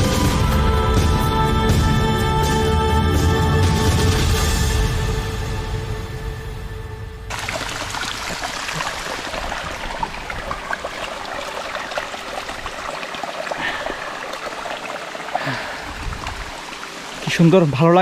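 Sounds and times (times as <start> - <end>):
background music: 0.0 - 7.9
stream trickling over rocks: 7.3 - 18.0.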